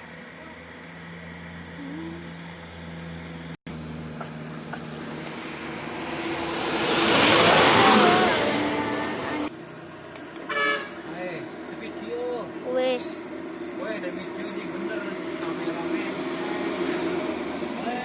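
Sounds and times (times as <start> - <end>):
heavy truck passing uphill: 0.0 - 18.0.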